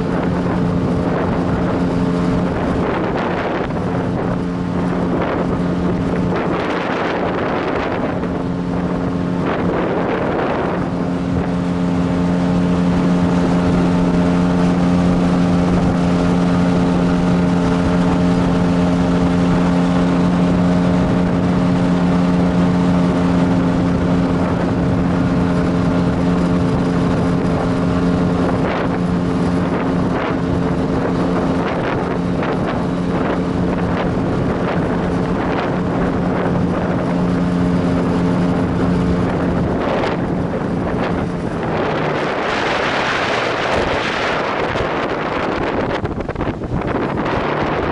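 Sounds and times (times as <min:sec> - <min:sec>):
motorboat engine running: 0:00.0 - 0:47.9
wind noise on microphone: 0:00.0 - 0:47.9.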